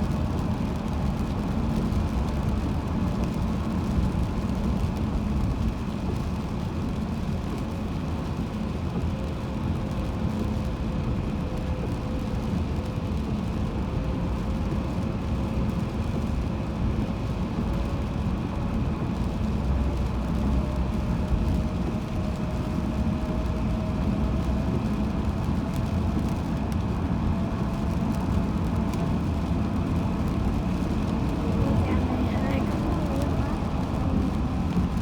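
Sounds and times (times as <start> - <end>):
car road noise on highway: 0.0 - 35.0.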